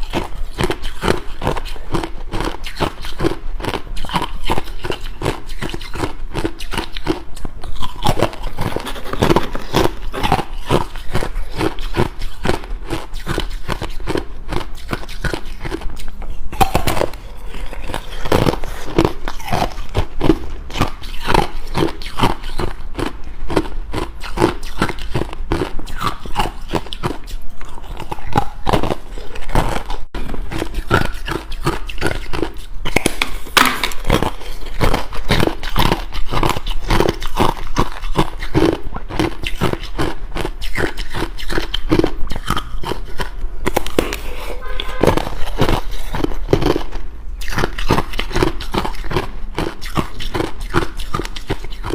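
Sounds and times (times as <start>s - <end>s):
ice being chewed: 0.0s - 51.9s.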